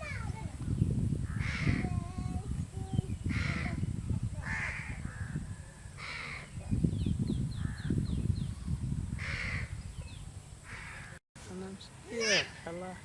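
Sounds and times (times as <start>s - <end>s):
crow cawing: 1.3s - 1.8s, 4.4s - 5.4s, 6.0s - 6.5s, 9.2s - 9.7s, 10.7s - 11.2s.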